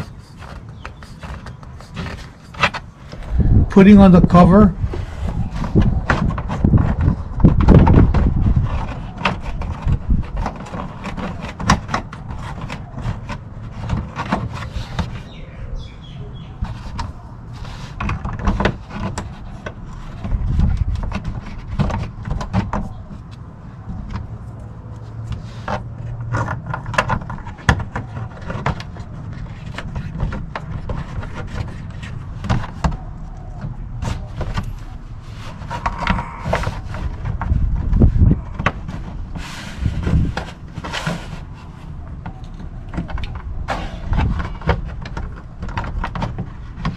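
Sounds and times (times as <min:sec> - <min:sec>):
low rumble: 0:03.2 - 0:03.8.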